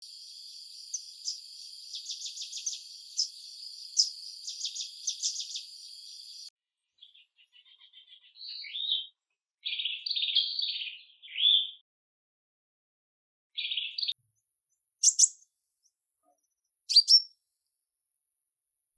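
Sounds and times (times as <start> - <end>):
birds chirping: 0.0 - 9.1, 15.0 - 15.4, 16.9 - 17.3
songbird warbling: 0.8 - 5.6, 15.0 - 15.4, 16.9 - 17.3.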